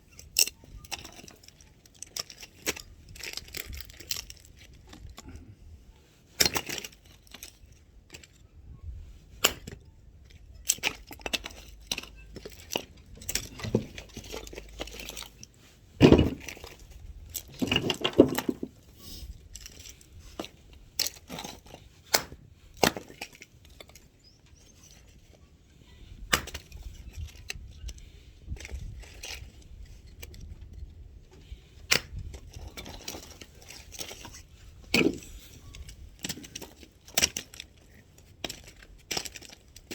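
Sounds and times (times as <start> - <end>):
axe chopping firewood: 9.4 - 9.8, 16.0 - 16.7, 22.1 - 23.3, 26.3 - 26.7, 34.9 - 35.2.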